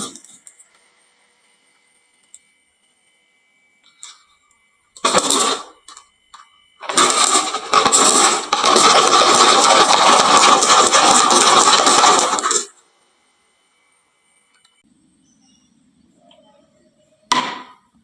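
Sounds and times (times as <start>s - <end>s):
marbles rattling down wooden run: 6.8s - 12.7s.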